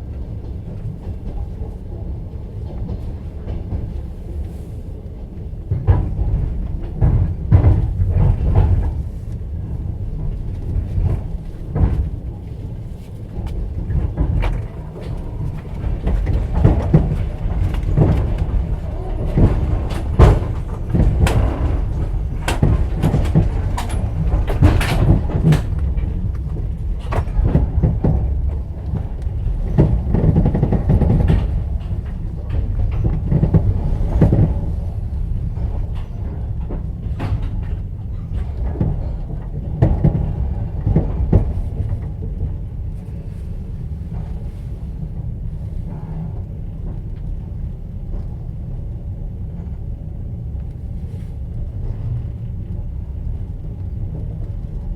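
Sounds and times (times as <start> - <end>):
train carriage rumble: 0.0 - 54.9
wheels clattering: 13.1 - 39.2.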